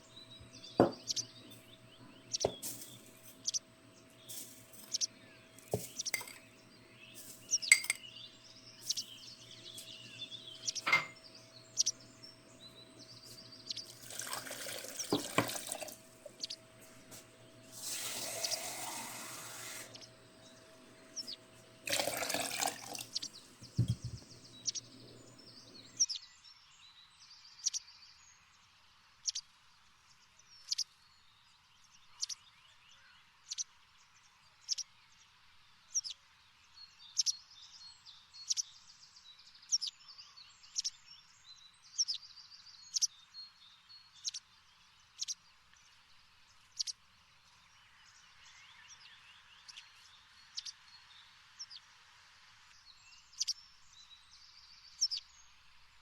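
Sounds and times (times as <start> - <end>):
small bird chirping: 0.0 - 26.2, 42.0 - 43.3, 44.0 - 44.6, 45.2 - 45.4, 46.6 - 51.9, 52.8 - 55.6
faint hiss: 0.1 - 26.0
water running: 0.4 - 8.1, 8.8 - 26.0.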